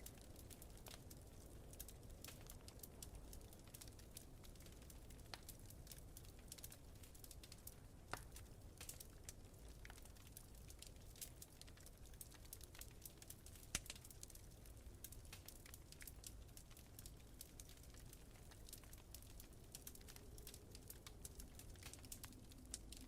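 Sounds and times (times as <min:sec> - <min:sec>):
loud fire snaps: 0:00.0 - 0:23.0
wood fire crackling: 0:00.0 - 0:23.0
low rumble of wind: 0:16.4 - 0:23.0.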